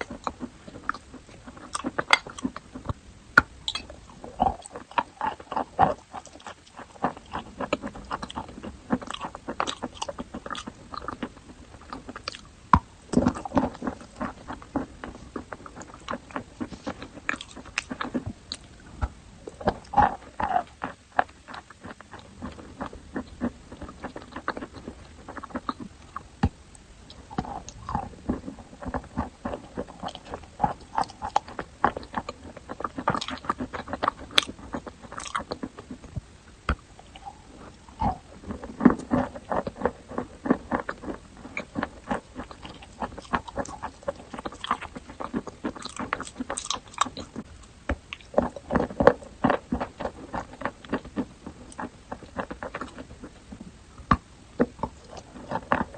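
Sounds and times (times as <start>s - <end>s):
chalk crunching while chewed: 3.7s - 18.8s, 19.4s - 53.4s, 54.1s - 55.9s.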